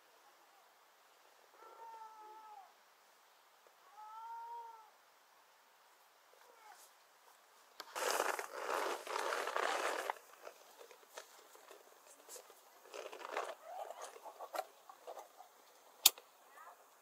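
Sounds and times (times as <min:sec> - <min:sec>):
crinkling and rustling: 0:07.7 - 0:16.9.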